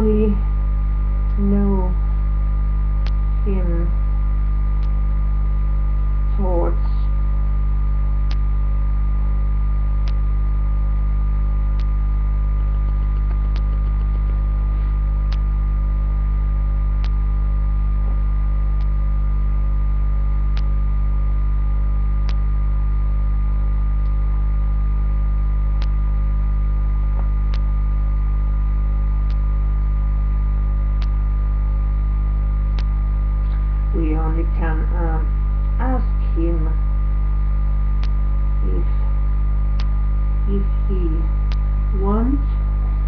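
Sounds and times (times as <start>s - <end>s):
electrical mains hum: 0.0s - 43.0s
faint sharp clicks: 3.0s - 3.2s, 4.8s - 5.0s, 8.2s - 8.5s, 10.0s - 10.2s, 11.7s - 12.0s, 12.6s - 14.4s, 15.3s - 15.5s, 17.0s - 17.2s, 18.8s - 19.0s, 20.5s - 20.7s, 22.2s - 22.4s, 25.8s - 26.0s, 27.2s - 27.7s, 29.2s - 29.4s, 31.0s - 31.2s, 32.7s - 33.6s, 38.0s - 38.2s, 39.8s - 40.0s, 41.5s - 41.7s.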